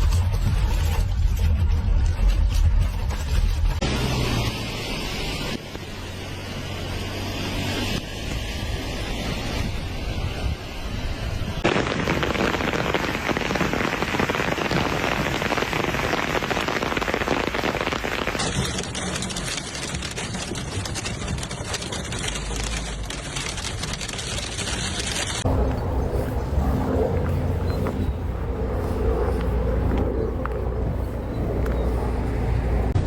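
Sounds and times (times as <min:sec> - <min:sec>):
heavy rain on hard surfaces: 0:11.1 - 0:25.5.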